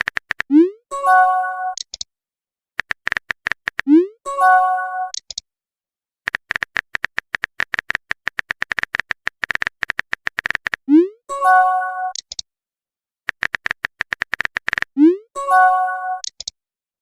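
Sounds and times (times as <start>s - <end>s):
phone keyboard typing clicks: 0.0s - 0.6s, 1.8s - 2.1s, 2.8s - 3.9s, 5.1s - 5.4s, 6.3s - 10.9s, 12.1s - 12.4s, 13.3s - 15.0s, 16.2s - 16.6s.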